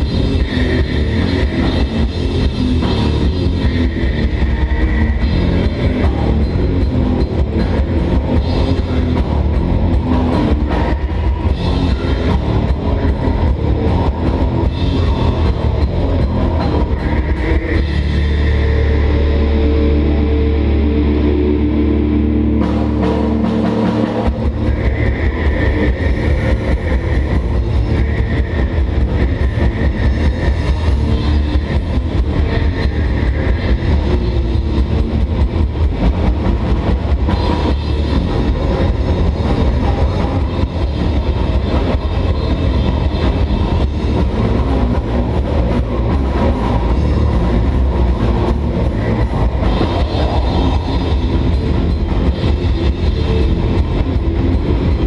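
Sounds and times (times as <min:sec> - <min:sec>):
fast dense drumming: 0:00.0 - 0:55.0
metal band playing: 0:00.0 - 0:55.0.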